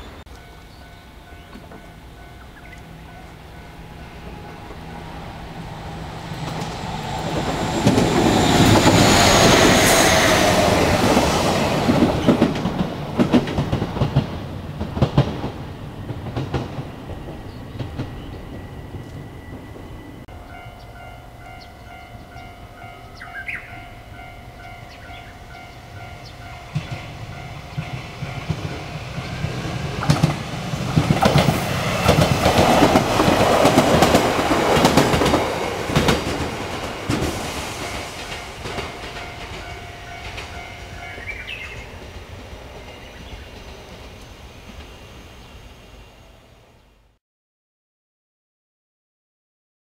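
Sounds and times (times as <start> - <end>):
electric train passing: 0.0 - 47.2
wheels clacking over rail joints: 4.2 - 19.6, 24.6 - 44.9.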